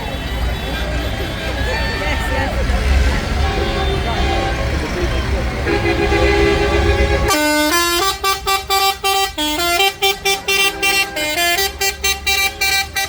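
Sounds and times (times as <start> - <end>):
low engine rumble: 0.0 - 13.0
musical vehicle horn tune: 3.2 - 13.0.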